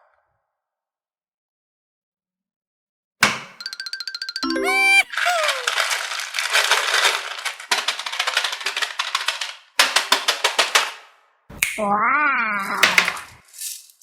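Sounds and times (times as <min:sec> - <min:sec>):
rapid clattering clicks: 0:05.7 - 0:10.9.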